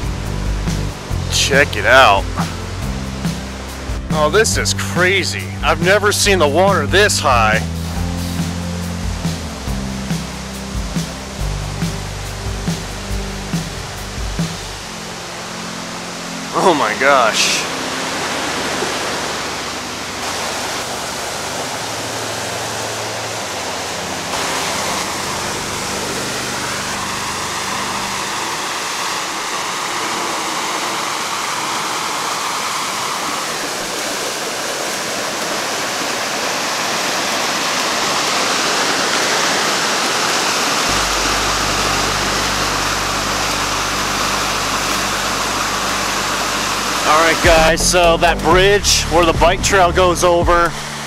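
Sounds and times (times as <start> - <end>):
river in flood roaring: 0.0 - 48.5, 49.1 - 51.0
low steady hum: 17.2 - 32.8, 40.8 - 48.8.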